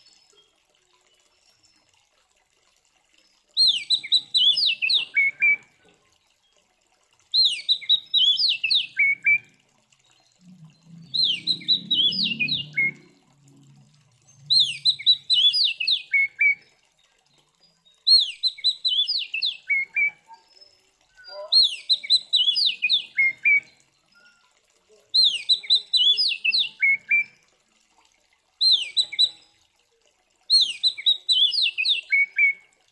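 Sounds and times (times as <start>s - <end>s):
bird whistled song phrase: 7.4s - 9.5s, 11.0s - 13.1s, 14.4s - 16.6s, 18.1s - 24.5s, 25.2s - 27.4s, 28.6s - 29.5s, 30.5s - 32.7s.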